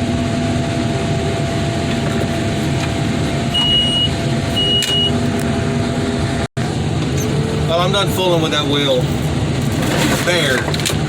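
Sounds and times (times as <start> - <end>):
diesel engine running: 0.0 - 11.0
backup alarm beeps: 3.5 - 5.2.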